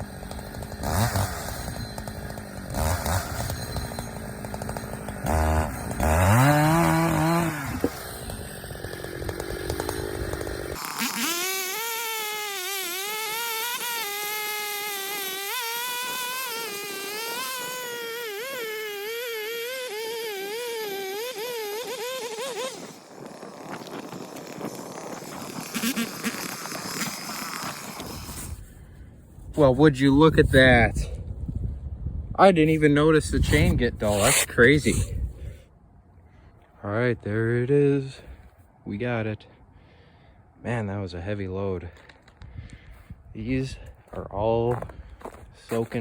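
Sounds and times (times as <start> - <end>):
chainsaw cutting log: 0.0 - 28.8, 33.2 - 35.6.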